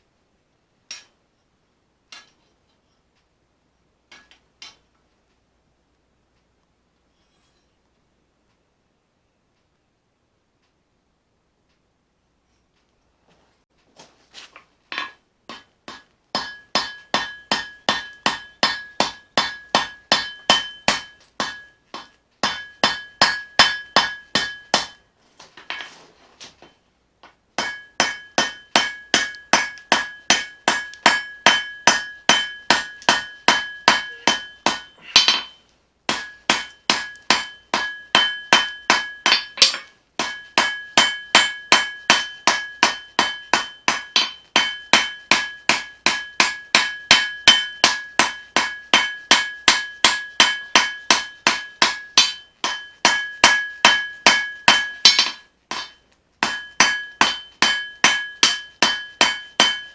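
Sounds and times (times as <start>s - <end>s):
anvil ringing: 15.9s - 25.0s, 27.6s - 59.9s
hammer blows on hot steel: 27.6s - 59.9s.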